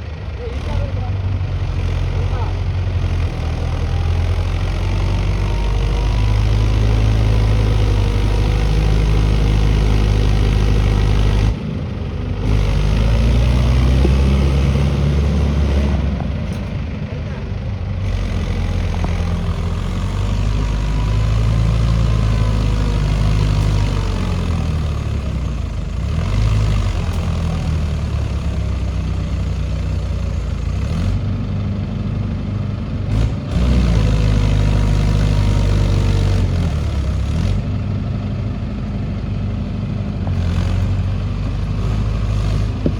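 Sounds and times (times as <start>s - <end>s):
tractor diesel engine under load: 0.0s - 42.9s.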